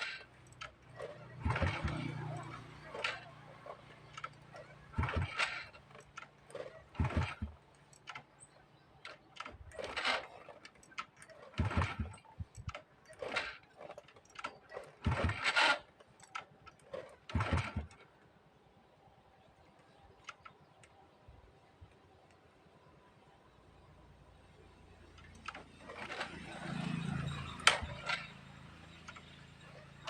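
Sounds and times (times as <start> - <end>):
motorcycle kick-start thump: 0.0 - 3.3, 4.0 - 8.4, 9.0 - 18.0, 27.5 - 28.3.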